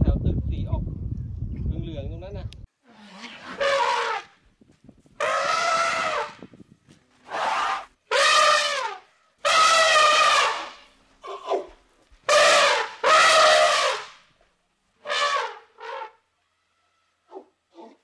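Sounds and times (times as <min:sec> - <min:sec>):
animal calling: 0:05.2 - 0:06.4.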